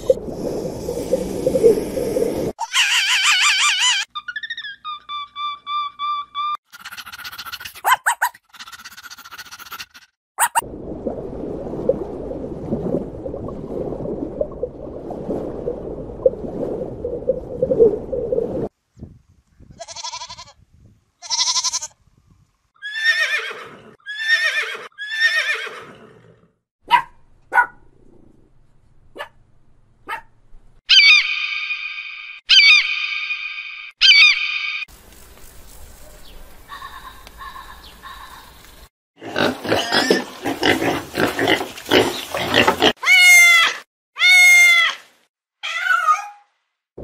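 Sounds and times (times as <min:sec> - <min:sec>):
goats bleating: 0:21.2 - 0:21.9.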